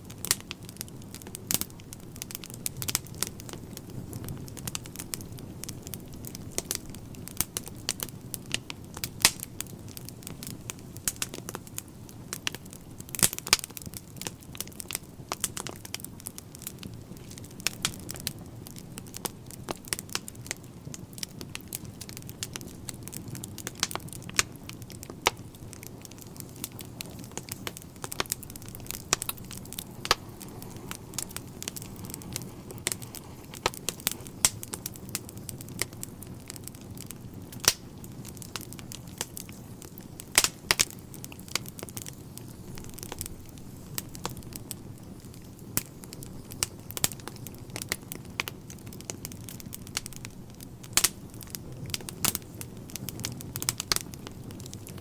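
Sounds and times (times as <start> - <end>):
low rush of flames: 0.0 - 55.0
sharp pops of fire: 0.0 - 55.0
wood fire crackling: 0.0 - 55.0.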